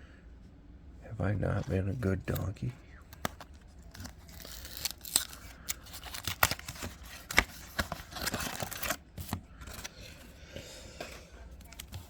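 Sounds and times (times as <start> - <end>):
trading cards clicking and scraping: 3.1 - 10.3.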